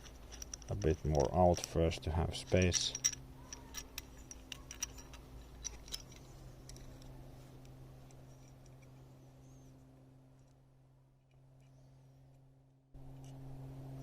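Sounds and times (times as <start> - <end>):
small metallic clicks: 0.0 - 1.8, 2.4 - 9.1
low steady hum: 0.0 - 14.0.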